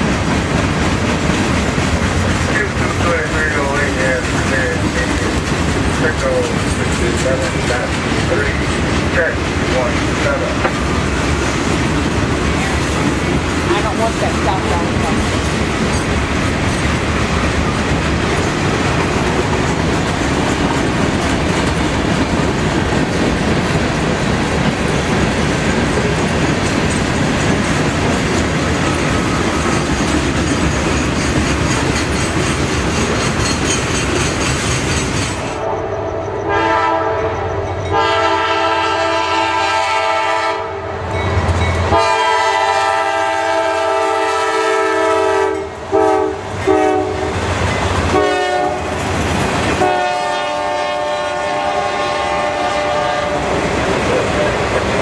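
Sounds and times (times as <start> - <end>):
freight train wheels clattering: 0.0 - 35.6, 37.2 - 55.0
locomotive air horn blasts: 35.6 - 41.0, 41.9 - 47.4, 48.1 - 48.9, 49.8 - 53.4.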